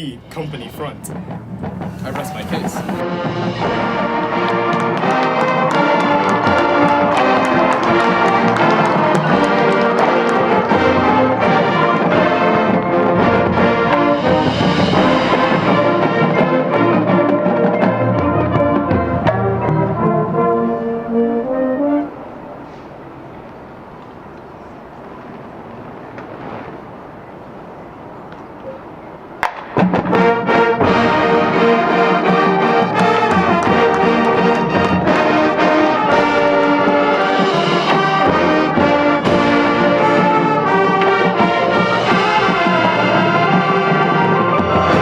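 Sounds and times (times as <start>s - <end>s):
brass playing sustained chords: 0.0s - 23.9s, 30.1s - 45.0s
percussion hits: 0.3s - 20.2s, 29.4s - 45.0s.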